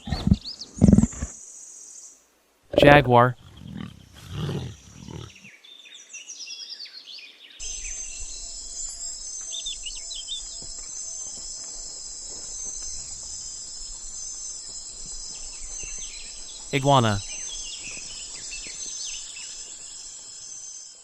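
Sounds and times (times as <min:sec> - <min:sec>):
bird calls: 0:07.6 - 0:20.6
high-pitched insect chorus: 0:07.6 - 0:21.0.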